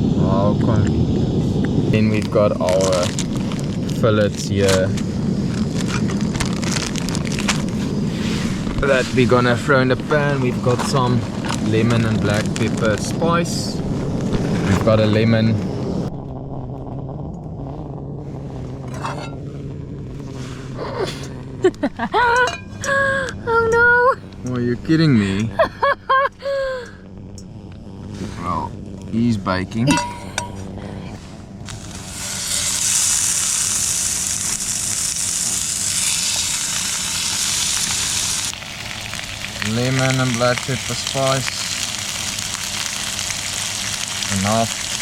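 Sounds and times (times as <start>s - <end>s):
gas stove burner roaring: 0.0s - 45.0s
fish frying in oil: 2.0s - 8.1s, 8.7s - 13.4s, 31.7s - 45.0s.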